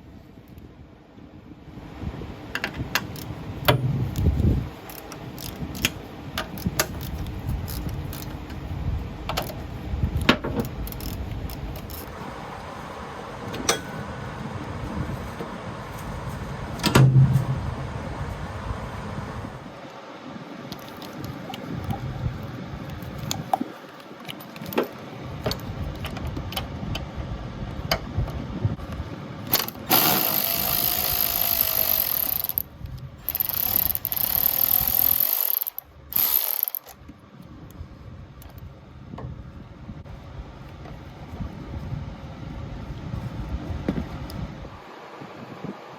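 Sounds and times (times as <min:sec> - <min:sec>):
ratchet clicking: 0:03.0 - 0:08.4, 0:10.2 - 0:12.1, 0:29.5 - 0:37.0
electric ratchet motor whining: 0:29.5 - 0:37.0.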